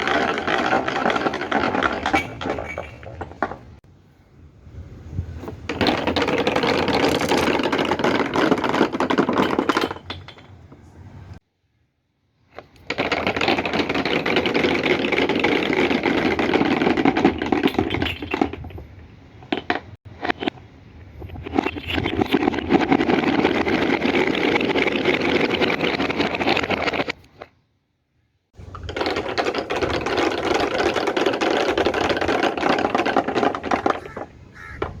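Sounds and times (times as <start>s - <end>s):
balls rattling down wooden track: 0.0s - 3.8s, 5.4s - 10.8s, 12.6s - 18.8s, 21.2s - 27.3s, 28.6s - 35.0s.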